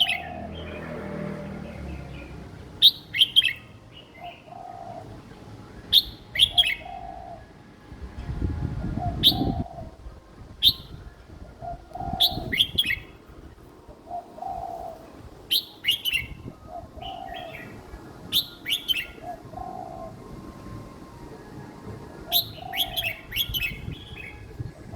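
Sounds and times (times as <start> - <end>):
low rumbling noise: 5.1 - 15.6, 16.2 - 24.9.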